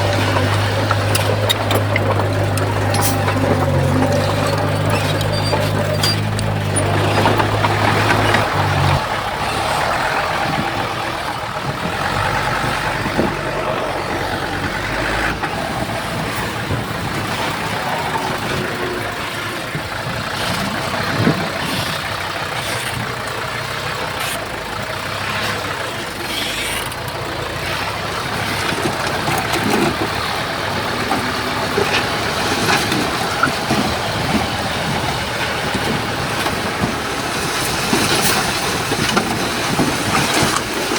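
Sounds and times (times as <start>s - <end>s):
metal clanks and knocks: 0.0s - 9.0s
heavy diesel engines running: 0.0s - 40.9s.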